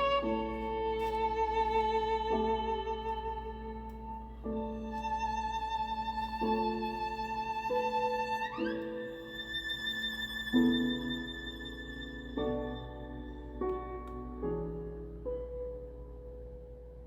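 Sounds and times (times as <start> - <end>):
violin with vibrato: 0.0 - 13.6.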